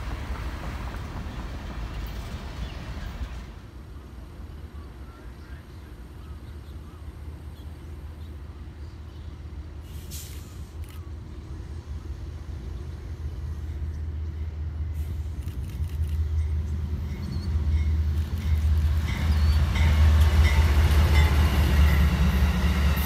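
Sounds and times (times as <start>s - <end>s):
train rumble: 0.0s - 23.0s
brief hiss: 9.8s - 11.0s.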